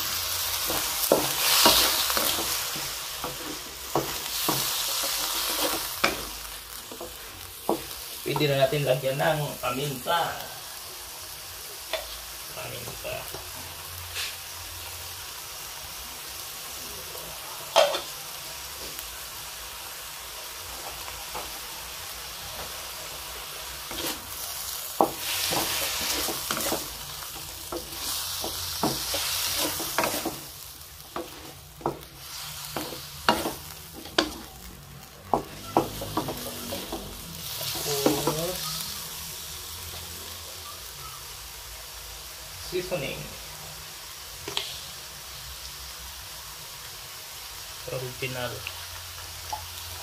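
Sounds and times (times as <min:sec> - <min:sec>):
food sizzling in a wok: 0:00.0 - 0:50.0
wooden spatula scraping: 0:00.6 - 0:08.5, 0:23.8 - 0:34.6.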